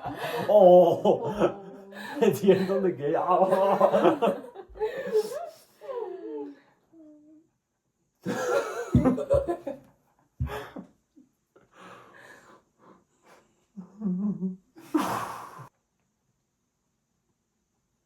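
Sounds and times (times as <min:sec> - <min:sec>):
people laughing and gasping: 0:00.0 - 0:07.1, 0:10.4 - 0:10.9.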